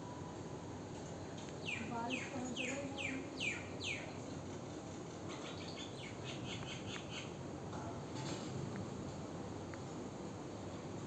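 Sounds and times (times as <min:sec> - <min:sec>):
bird chirping: 0:01.6 - 0:04.2, 0:05.3 - 0:07.4.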